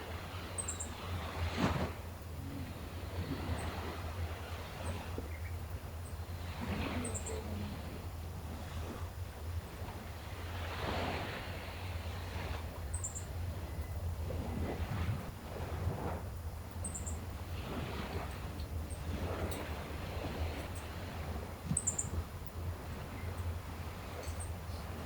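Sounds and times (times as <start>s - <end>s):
gentle sea waves washing in: 0.0s - 25.0s
steady low rumble: 0.0s - 25.0s
small birds chirping: 0.6s - 0.9s, 5.2s - 6.2s, 12.9s - 14.0s, 16.8s - 17.2s, 21.8s - 22.2s.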